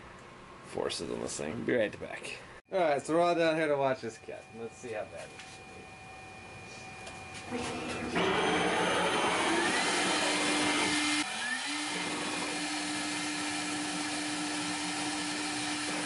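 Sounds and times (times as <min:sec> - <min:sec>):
spindle motor whirring: 0:05.5 - 0:16.0.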